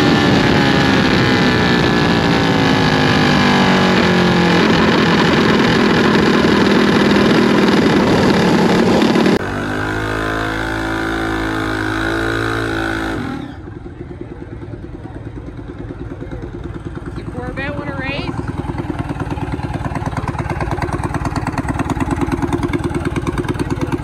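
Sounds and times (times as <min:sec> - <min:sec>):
engine idling with fast pulse: 0:00.0 - 0:24.0
engine running hard: 0:00.0 - 0:24.0
steady engine note: 0:00.0 - 0:24.0.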